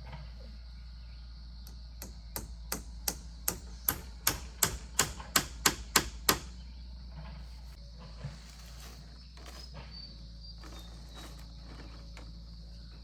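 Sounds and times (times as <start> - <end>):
insect buzz: 0.0 - 13.0
hammer strikes: 2.0 - 6.5.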